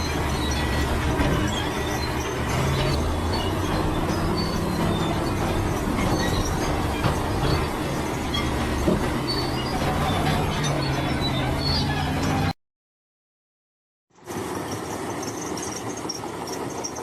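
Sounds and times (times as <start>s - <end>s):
bulldozer diesel engine: 0.0s - 12.6s
crawler tracks clanking and squeaking: 0.0s - 12.6s, 14.3s - 17.0s.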